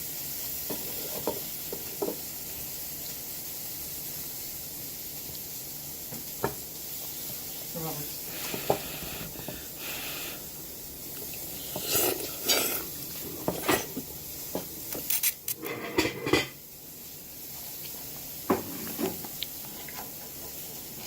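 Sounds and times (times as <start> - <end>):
faint hiss: 0.0 - 15.5, 16.5 - 21.0
dishes and cutlery clinking: 0.7 - 2.2, 13.4 - 16.6.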